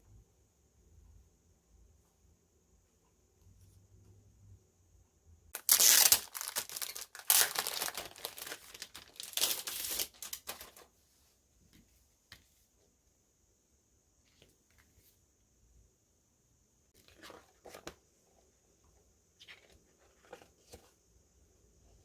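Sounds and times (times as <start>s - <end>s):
packaging torn and crinkled: 5.6s - 10.8s.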